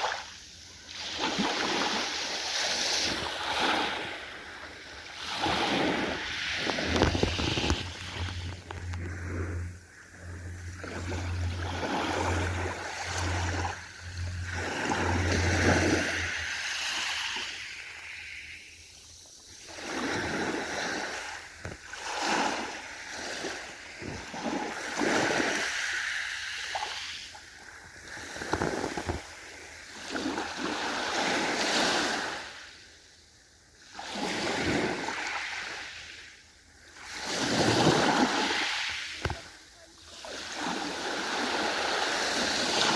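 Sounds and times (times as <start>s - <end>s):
ocean waves breaking: 0.0s - 32.6s, 37.0s - 42.9s
low pulsing hum: 4.8s - 18.0s.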